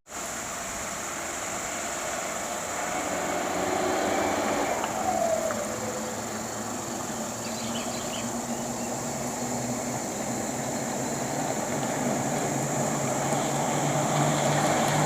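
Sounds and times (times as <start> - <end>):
high insect drone: 0.1 - 15.0
truck diesel engine running: 0.6 - 15.0.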